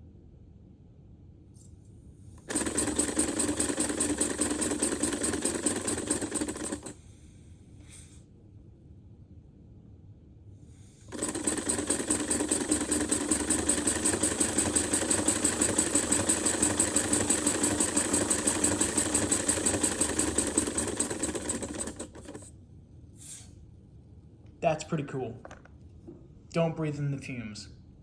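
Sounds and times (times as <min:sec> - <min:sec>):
pneumatic engine clattering: 0:02.4 - 0:07.0, 0:11.1 - 0:22.5
hiss of escaping air: 0:07.1 - 0:08.2, 0:23.2 - 0:23.6.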